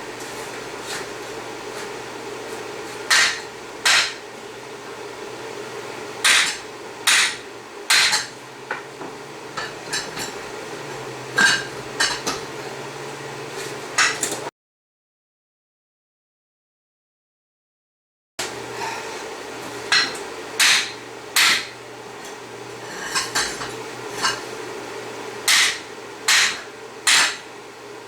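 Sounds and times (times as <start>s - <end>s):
steady low hum: 0.0s - 14.5s, 18.4s - 28.0s
hammer striking steel: 6.2s - 8.3s, 19.9s - 21.8s, 25.5s - 27.5s.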